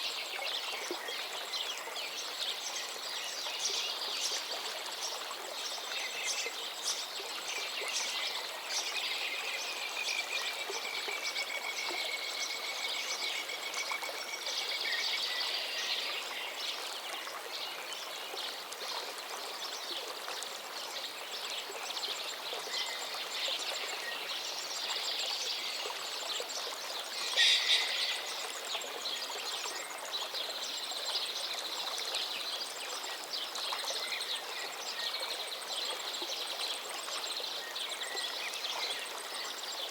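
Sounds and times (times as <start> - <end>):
birds calling: 27.2 - 28.5.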